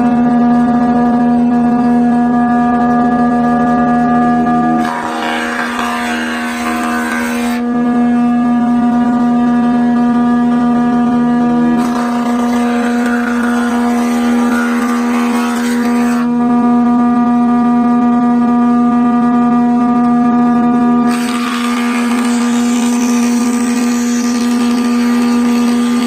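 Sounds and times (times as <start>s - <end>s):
machine cutting wood: 4.3s - 16.7s, 21.0s - 26.0s
electric motor humming: 4.6s - 16.8s, 21.1s - 26.0s.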